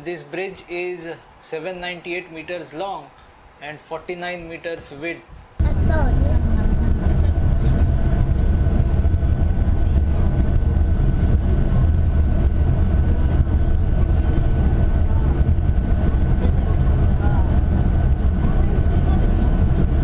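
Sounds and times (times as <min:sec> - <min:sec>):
high steady whine: 0:05.6 - 0:20.0
train running low rumble: 0:05.6 - 0:20.0.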